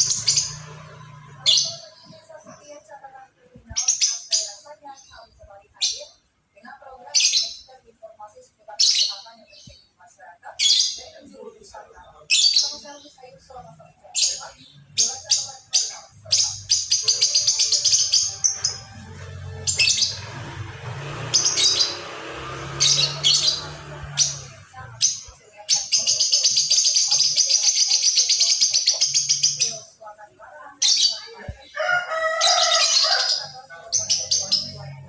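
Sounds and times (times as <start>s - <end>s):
bird chattering trills: 0.0s - 2.2s, 13.9s - 30.0s, 32.4s - 35.0s.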